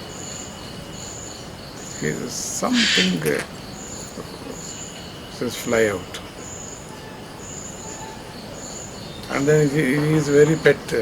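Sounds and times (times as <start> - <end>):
insect chirping: 0.0 - 11.0
low background hiss: 0.0 - 11.0.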